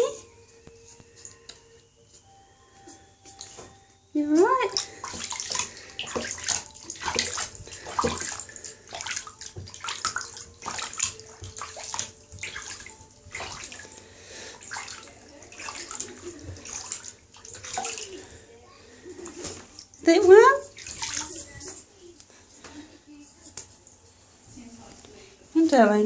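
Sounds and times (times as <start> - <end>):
bird splashing water: 4.7 - 18.4, 20.7 - 21.6.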